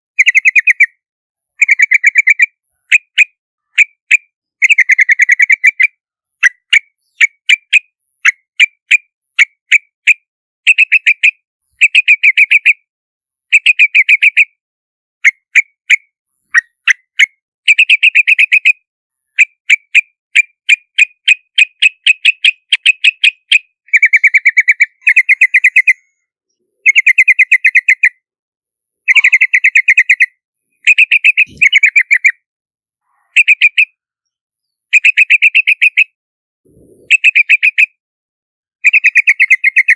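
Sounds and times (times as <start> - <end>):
bird chirping and chattering: 0.2 - 1.0, 1.6 - 12.8, 19.3 - 28.2, 29.1 - 32.4, 33.0 - 36.1, 36.7 - 38.0, 38.8 - 39.9.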